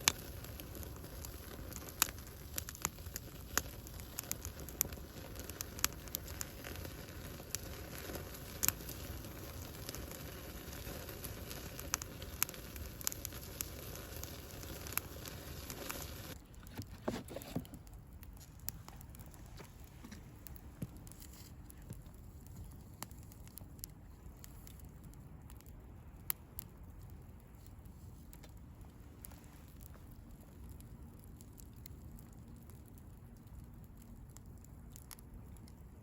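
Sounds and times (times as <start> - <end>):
fire hiss: 0.0 - 16.4
bonfire crackling and popping: 0.0 - 36.0.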